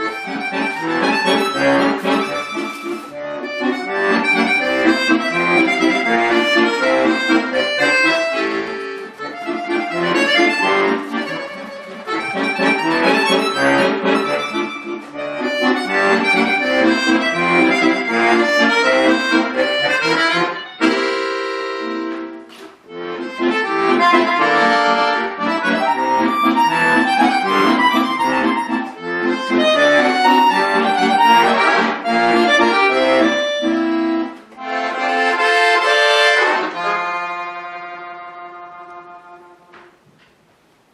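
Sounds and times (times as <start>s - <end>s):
button accordion solo: 0.0s - 40.0s.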